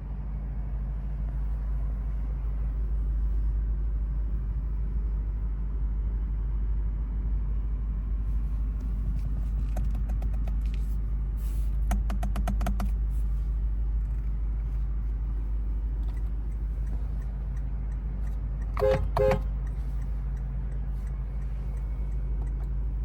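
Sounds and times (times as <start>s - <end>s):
car engine rumbling: 0.0s - 23.0s.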